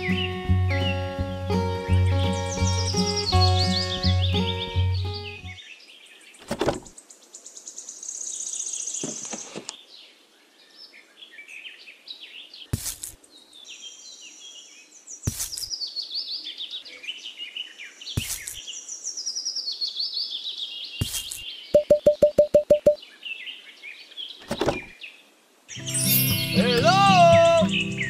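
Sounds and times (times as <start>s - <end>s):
songbirds chirping: 0.0s - 28.0s
sharp knocks: 6.4s - 6.9s, 24.4s - 24.9s.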